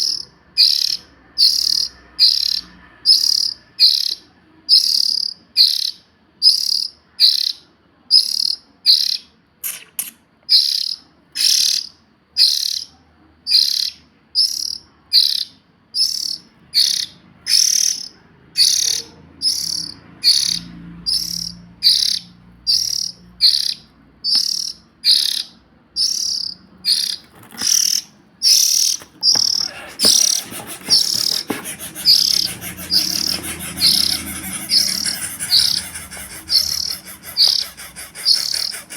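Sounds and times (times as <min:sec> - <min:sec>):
dense bird chirping: 0:24.4 - 0:38.9.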